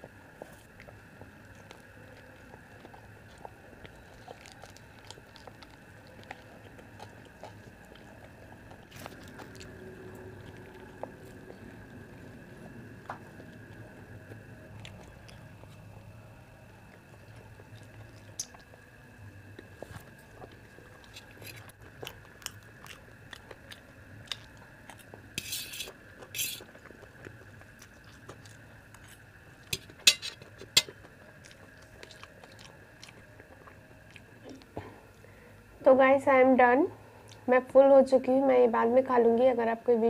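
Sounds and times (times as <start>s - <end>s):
chewing and biting food: 0.0s - 35.2s
faint high hum: 0.0s - 40.0s
steel fork clicking on plate: 29.7s - 30.9s.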